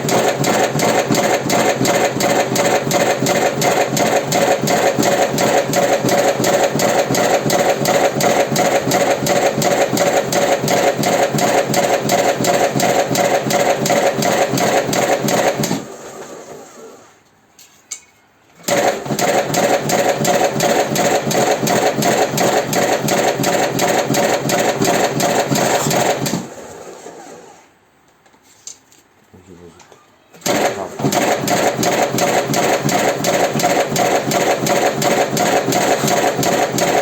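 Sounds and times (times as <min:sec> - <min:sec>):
machine clattering: 0:30.4 - 0:37.0.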